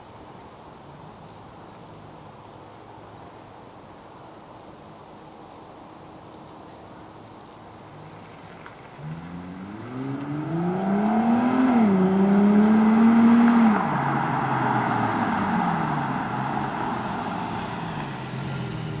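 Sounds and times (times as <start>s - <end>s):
car exhaust accelerating: 7.9s - 19.0s.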